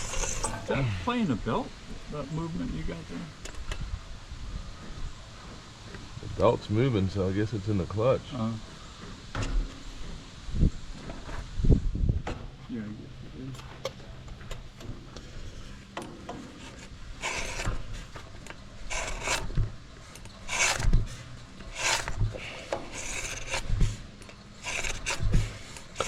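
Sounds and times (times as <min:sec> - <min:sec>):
file rasping on blade: 0:00.0 - 0:00.7, 0:16.6 - 0:18.2, 0:18.8 - 0:19.6, 0:20.4 - 0:24.0, 0:24.6 - 0:26.0.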